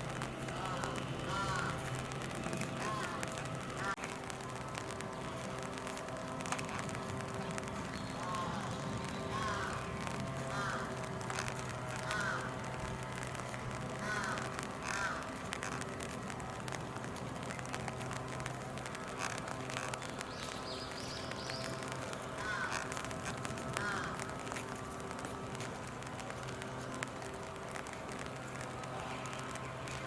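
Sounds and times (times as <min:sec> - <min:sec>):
crow cawing: 0:00.5 - 0:01.9, 0:02.8 - 0:04.0, 0:08.2 - 0:08.7, 0:09.3 - 0:11.4, 0:12.0 - 0:12.6, 0:14.0 - 0:15.4, 0:22.4 - 0:24.3.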